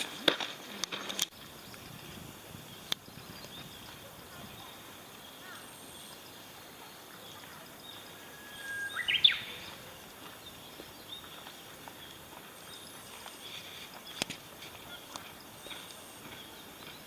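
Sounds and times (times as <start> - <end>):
bird call: 3.4 - 10.0.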